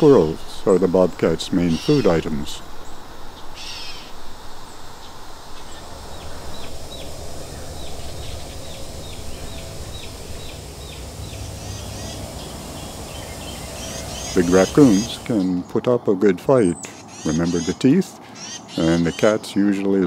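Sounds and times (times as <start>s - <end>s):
low outdoor rumble: 0.0s - 15.8s
bird calling high down-slurred notes: 1.6s - 2.5s, 5.0s - 15.7s.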